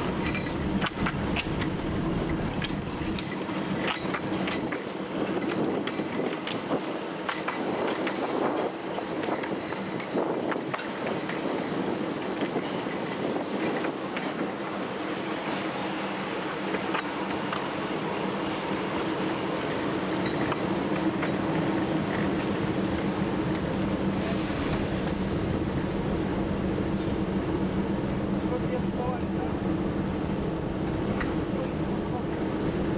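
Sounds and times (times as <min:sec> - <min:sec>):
diesel locomotive engine running: 0:00.0 - 0:10.8
wheel and track noise: 0:00.0 - 0:32.9.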